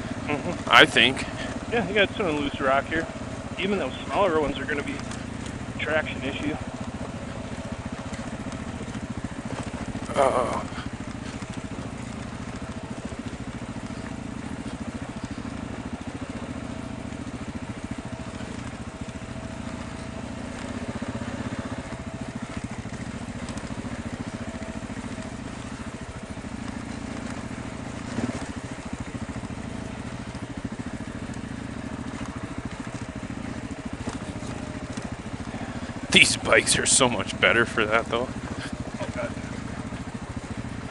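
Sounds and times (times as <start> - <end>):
motorcycle engine at low revs: 0.0 - 40.9
tyres rolling over loose rock: 6.4 - 40.9.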